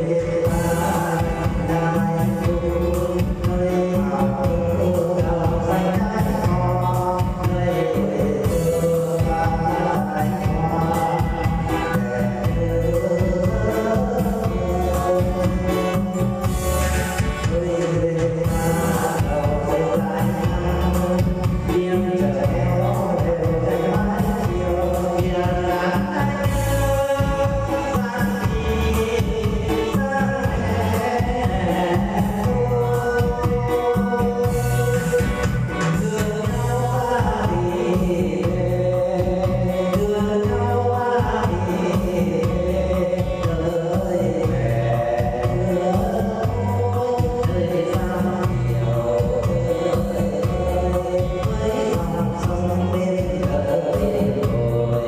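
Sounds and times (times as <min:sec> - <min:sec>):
instrumental backing music: 0:00.0 - 0:55.0
person singing: 0:00.0 - 0:55.0.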